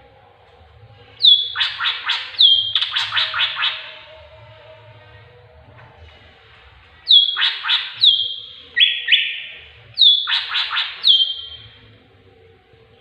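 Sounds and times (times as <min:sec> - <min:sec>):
harsh rasping bird notes: 0:01.1 - 0:04.8, 0:07.0 - 0:12.0
bird calling with sharp falling notes: 0:01.2 - 0:04.1, 0:07.1 - 0:11.8.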